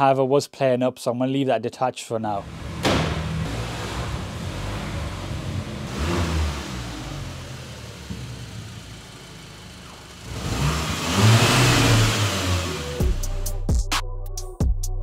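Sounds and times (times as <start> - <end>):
car engine revving: 2.4 - 13.4.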